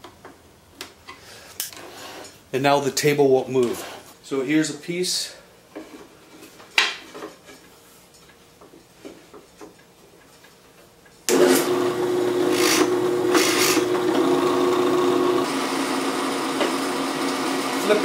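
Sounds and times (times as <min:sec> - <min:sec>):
drill bit scraping into wood: 0:11.3 - 0:18.0
drill press motor running: 0:11.3 - 0:18.0.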